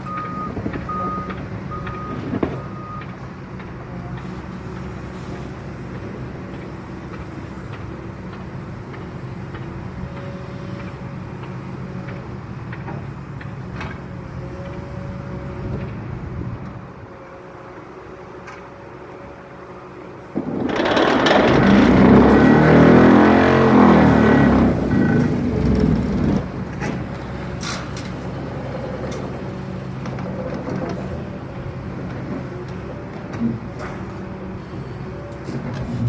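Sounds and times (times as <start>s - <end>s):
excavator engine running: 0.0s - 36.0s.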